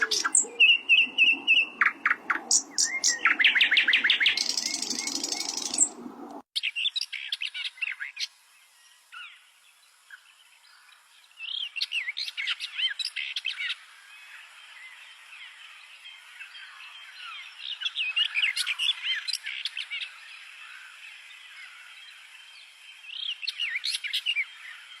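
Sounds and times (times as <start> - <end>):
bird singing high chirping notes: 0.0 - 6.4.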